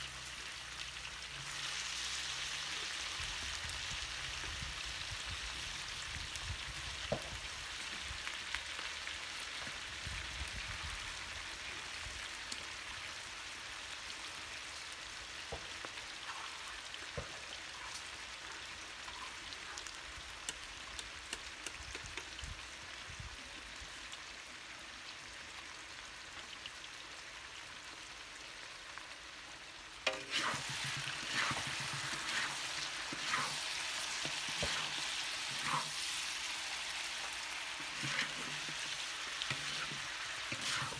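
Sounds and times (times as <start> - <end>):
food sizzling in a pan: 0.0 - 40.9
stirring scraping knocks: 30.1 - 36.2, 37.2 - 40.9.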